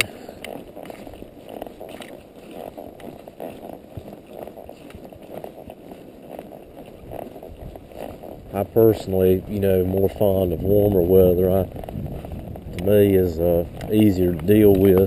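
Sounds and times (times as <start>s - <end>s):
faint hoofsteps: 0.0s - 15.0s
wind buffeting microphone: 6.4s - 15.0s.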